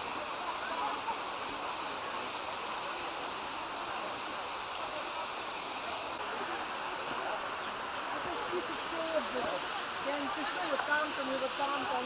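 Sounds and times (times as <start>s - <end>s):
water rushing down rocky cascades: 0.0s - 12.0s.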